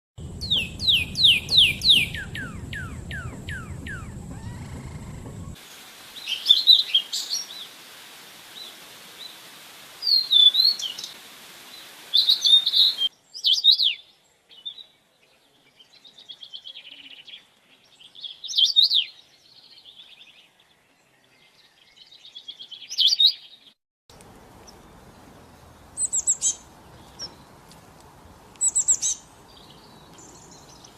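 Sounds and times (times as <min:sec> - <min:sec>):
songbirds chirping: 0:00.2 - 0:07.8, 0:08.5 - 0:30.9
background hiss: 0:00.2 - 0:14.6, 0:24.1 - 0:30.9.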